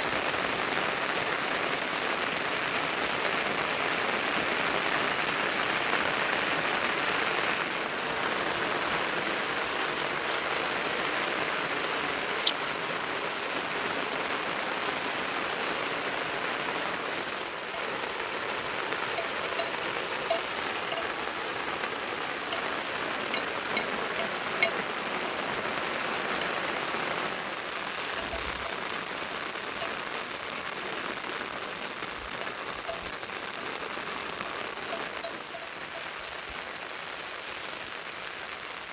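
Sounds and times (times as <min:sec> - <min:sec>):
rain pattering on surfaces: 0:00.0 - 0:38.9
sharp drips: 0:07.9 - 0:30.9, 0:32.0 - 0:36.2.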